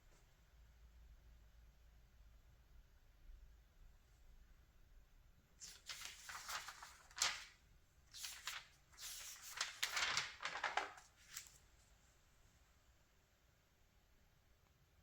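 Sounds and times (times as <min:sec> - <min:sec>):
magazine pages rustling: 0:05.6 - 0:11.9
paper snapping: 0:08.2 - 0:11.5.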